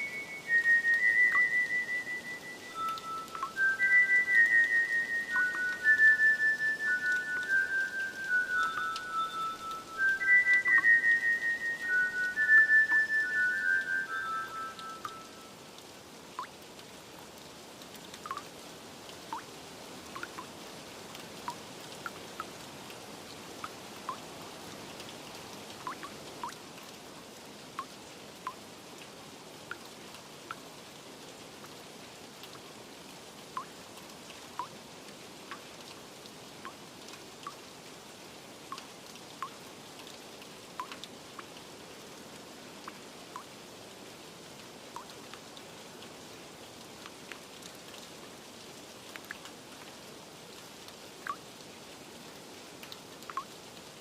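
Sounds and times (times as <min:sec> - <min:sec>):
water drops plinking: 0:00.0 - 0:15.6, 0:18.2 - 0:18.5, 0:20.2 - 0:20.5, 0:25.8 - 0:26.6
steady rain hiss: 0:00.0 - 0:54.0.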